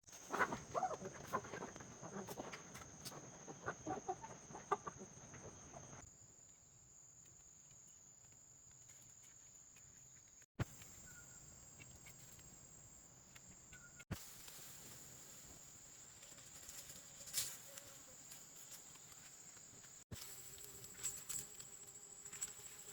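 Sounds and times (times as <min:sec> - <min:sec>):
chickens clucking: 0:00.2 - 0:06.0.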